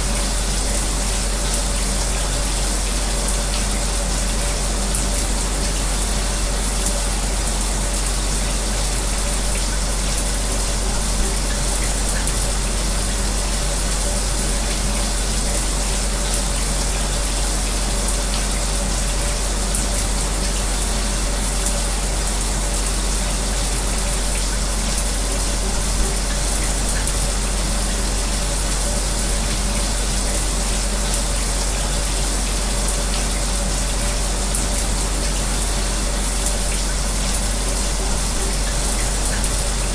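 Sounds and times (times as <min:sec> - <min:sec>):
electric fan humming: 0:00.0 - 0:39.9
shower running: 0:00.0 - 0:39.9.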